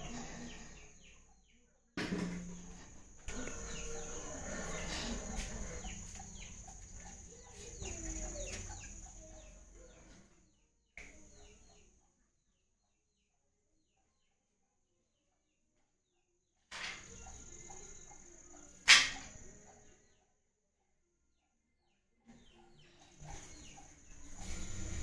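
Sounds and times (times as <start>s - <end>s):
birds chirping: 0.0s - 1.6s, 2.3s - 11.9s, 16.9s - 20.2s, 22.3s - 25.0s.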